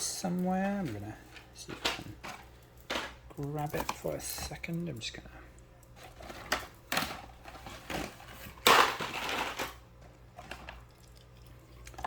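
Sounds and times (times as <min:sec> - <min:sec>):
rummaging through belongings: 0:00.0 - 0:05.0, 0:05.8 - 0:11.0.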